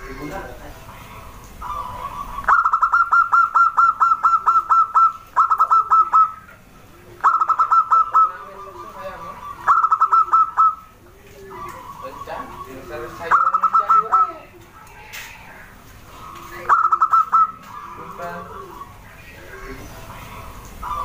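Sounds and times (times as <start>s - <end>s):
dove cooing rapidly: 0.0s - 21.0s.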